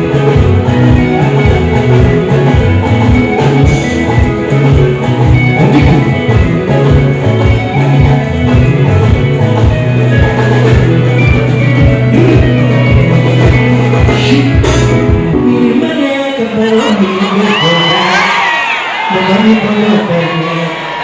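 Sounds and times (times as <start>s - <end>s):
steady drum beat: 0.0s - 15.6s
live rock band music: 0.0s - 21.0s.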